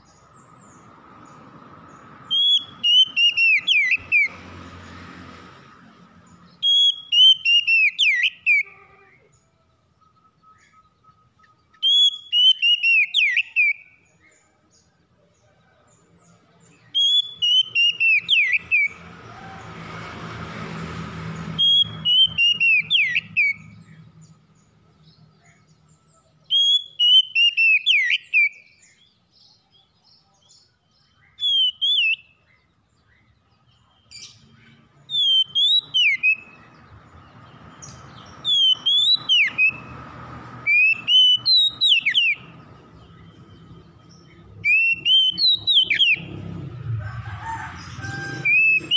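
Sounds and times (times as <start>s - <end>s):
bird singing whistled phrases: 2.3s - 4.3s, 6.6s - 8.7s, 10.1s - 14.0s, 16.9s - 18.9s, 21.6s - 23.7s, 26.5s - 28.9s, 31.2s - 32.4s, 35.1s - 36.6s, 38.4s - 39.9s, 40.7s - 42.5s, 44.6s - 46.3s.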